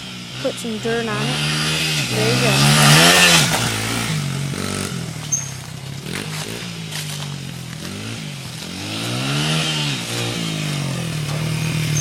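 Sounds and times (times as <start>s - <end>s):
distant dirt bike engine revving: 0.0s - 12.0s.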